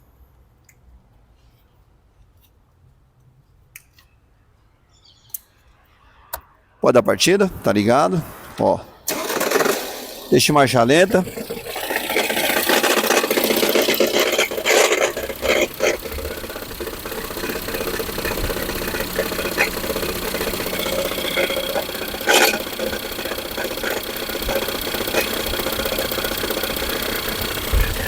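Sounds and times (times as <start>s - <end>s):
car engine idling with knocking: 9.1s - 10.3s, 10.9s - 28.0s.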